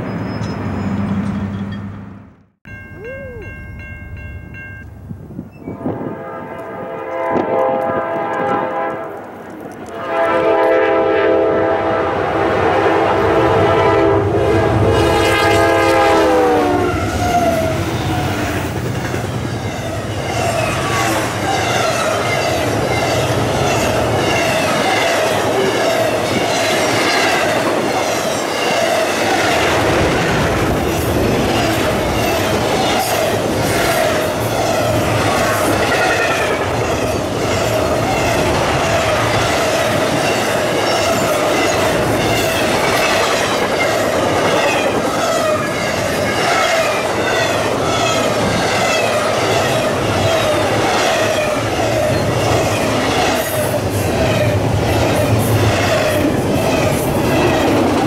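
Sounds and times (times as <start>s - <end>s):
wheel squeals: 0.0s - 1.8s
locomotive air horn chord: 5.8s - 9.2s, 9.9s - 17.0s.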